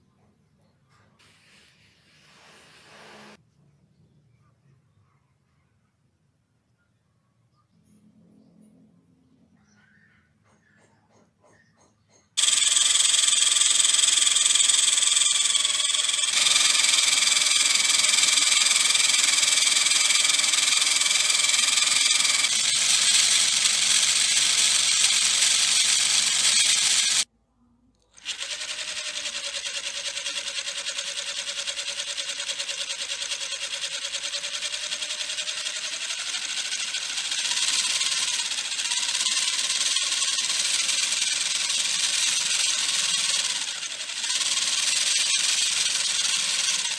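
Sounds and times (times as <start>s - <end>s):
small electric motor whining: 2.3s - 3.4s, 12.4s - 27.3s, 28.2s - 46.9s.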